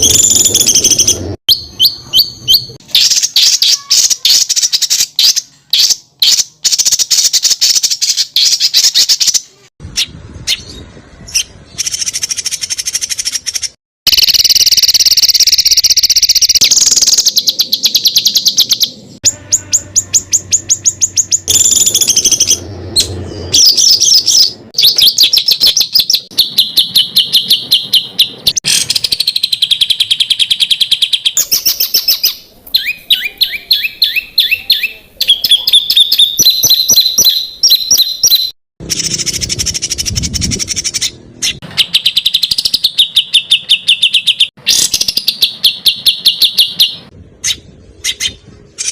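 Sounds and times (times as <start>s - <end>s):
songbird trills: 10.0s - 48.9s.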